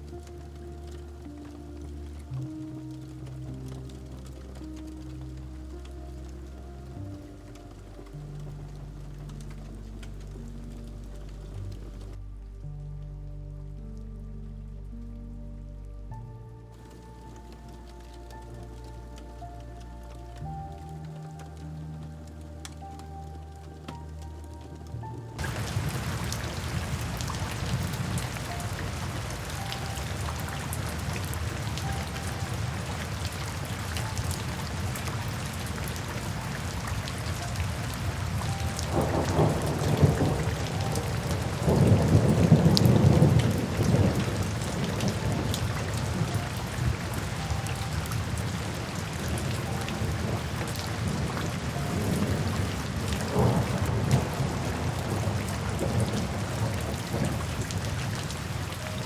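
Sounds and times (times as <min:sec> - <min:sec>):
steady rain: 0:00.0 - 0:59.0
low rolling thunder: 0:25.2 - 0:59.0.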